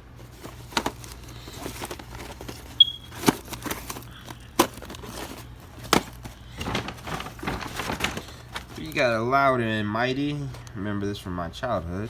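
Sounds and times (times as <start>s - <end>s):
packaging crinkling: 0.0s - 9.3s.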